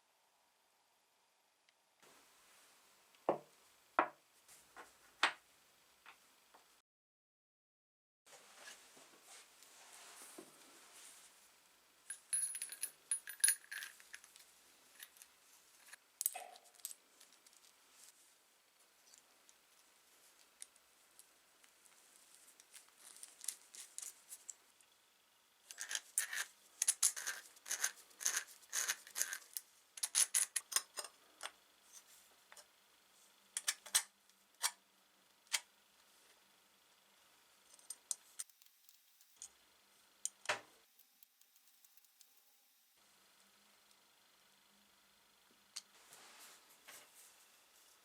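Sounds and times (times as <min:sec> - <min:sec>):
small metal parts clicking: 0:25.7 - 0:31.1, 0:37.7 - 0:39.5, 0:40.2 - 0:42.6.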